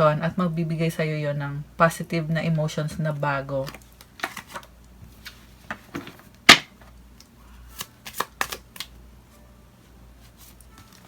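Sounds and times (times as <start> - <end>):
cards being shuffled: 3.6 - 9.0
card slap: 6.5 - 6.9, 7.8 - 8.9.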